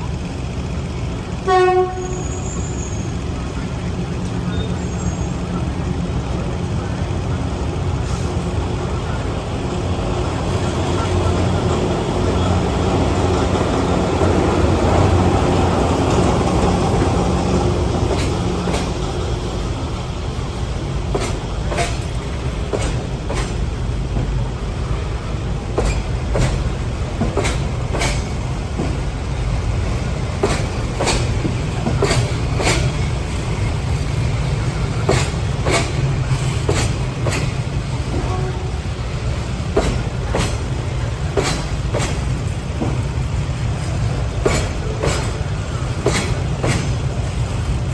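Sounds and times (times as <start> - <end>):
diesel locomotive engine: 0.0 - 47.9
freight wagons rumbling: 0.0 - 47.9
wheels clicking over rail joints: 10.2 - 47.9.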